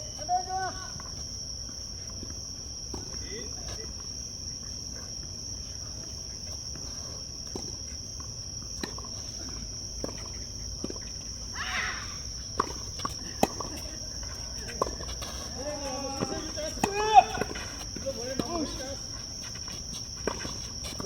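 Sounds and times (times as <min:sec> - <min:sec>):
insects buzzing: 0:00.0 - 0:21.0
tennis ball struck and bouncing: 0:15.9 - 0:17.7.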